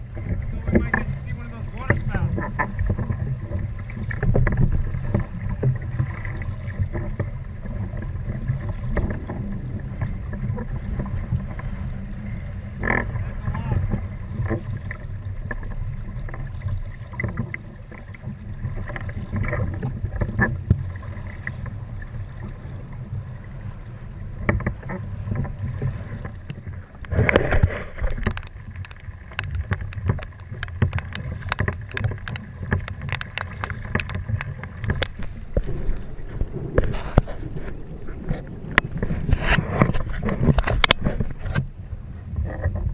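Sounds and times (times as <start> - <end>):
wind and water rumble: 0.0 - 42.9
sharp clicks and knocks: 26.4 - 41.7
rush of noise: 34.8 - 41.2.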